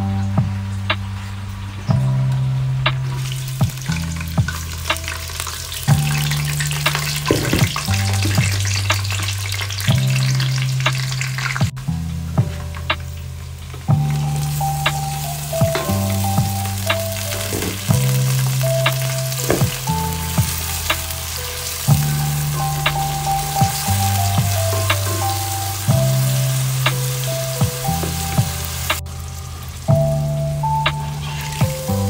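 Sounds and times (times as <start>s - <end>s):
background music with bass line: 0.0s - 32.0s
onions sizzling in hot oil: 3.2s - 11.7s, 14.0s - 32.0s.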